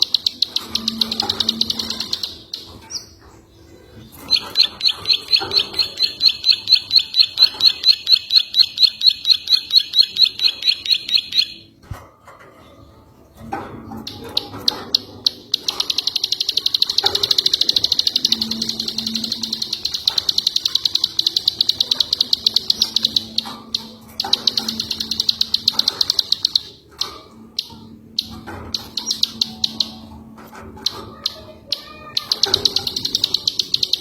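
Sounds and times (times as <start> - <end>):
songbird trilling: 4.1 - 11.7.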